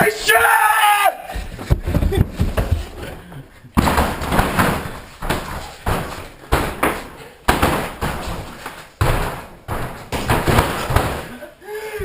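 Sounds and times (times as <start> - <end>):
heavy thuds and slams on floor: 1.4 - 3.1, 3.8 - 11.4.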